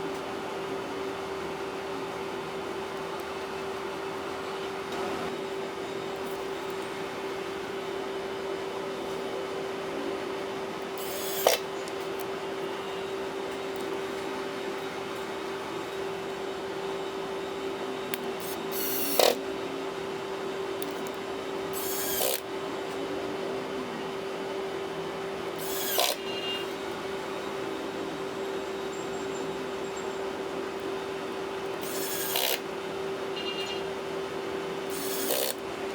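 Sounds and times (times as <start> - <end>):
steady electrical hum: 0.0 - 35.9.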